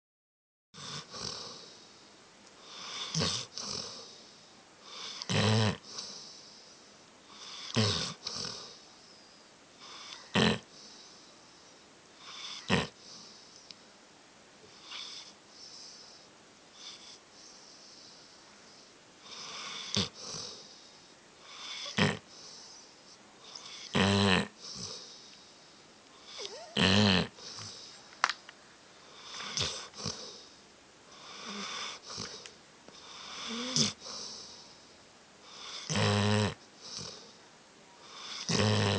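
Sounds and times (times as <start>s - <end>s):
dog snoring: 0.8s - 1.9s, 2.6s - 8.9s, 9.8s - 11.2s, 12.2s - 13.6s, 14.7s - 25.6s, 26.2s - 27.9s, 29.0s - 34.8s, 35.4s - 37.4s, 38.0s - 38.9s
dog breathing softly: 1.0s - 13.9s, 14.7s - 23.9s, 29.0s - 35.9s.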